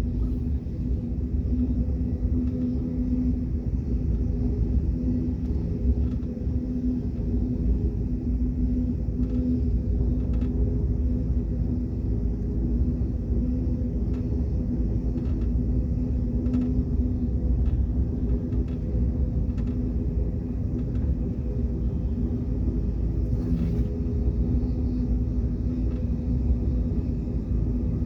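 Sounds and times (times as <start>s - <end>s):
constant hum: 0.0s - 28.0s
train rumbling: 0.0s - 28.0s.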